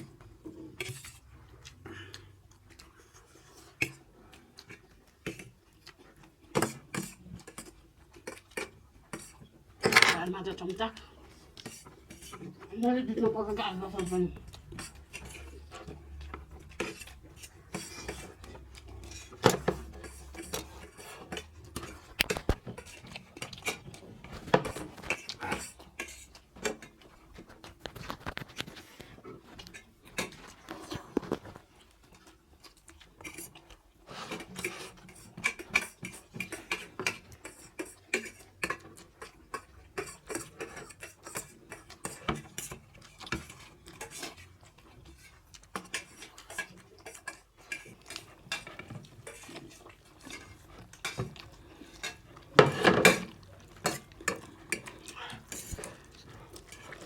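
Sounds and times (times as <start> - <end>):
cutlery clicking on plates: 9.8 - 10.3.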